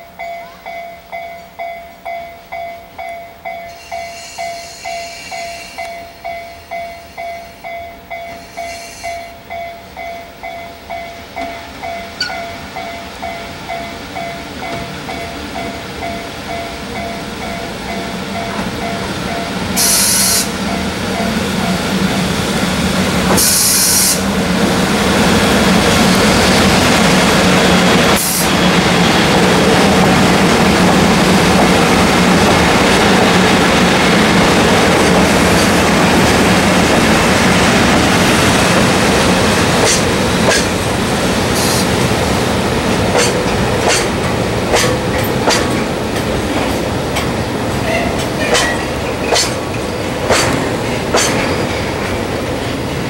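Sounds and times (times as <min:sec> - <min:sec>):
train rolling noise: 0:00.0 - 0:53.0
wheels clicking over rail joints: 0:42.8 - 0:53.0.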